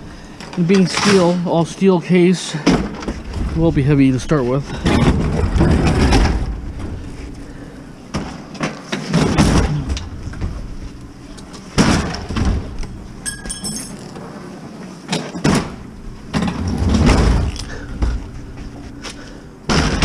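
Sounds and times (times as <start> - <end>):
ringing metallic clink: 13.2 - 14.1.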